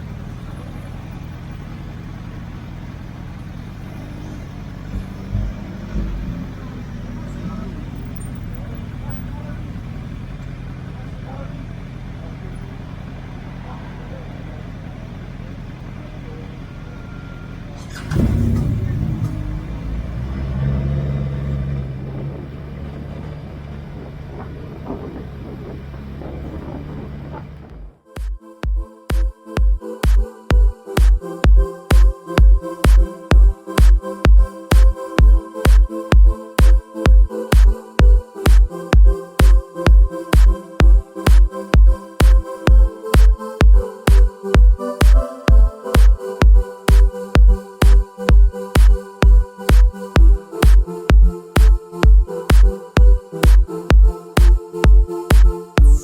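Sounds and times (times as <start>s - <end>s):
motorcycle engine and road rumble: 0.0s - 28.0s
short low thumps: 21.7s - 56.0s.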